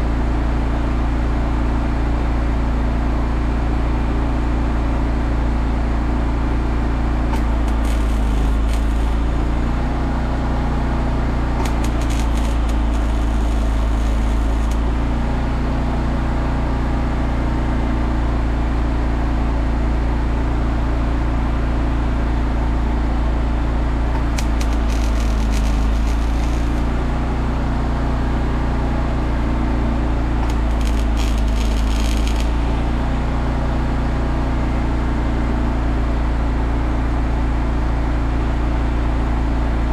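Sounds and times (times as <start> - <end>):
machine humming loudly: 7.2 - 10.4, 11.0 - 15.6, 24.0 - 27.4, 30.2 - 34.8
welding arc crackling: 7.3 - 9.9, 11.4 - 15.3, 24.2 - 27.2, 30.2 - 33.4.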